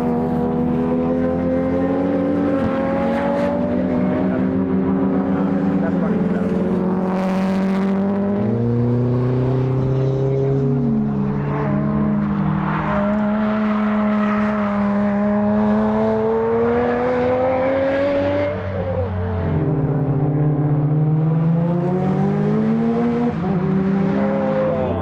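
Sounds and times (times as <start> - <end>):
race car engine accelerating: 0.0 - 25.0.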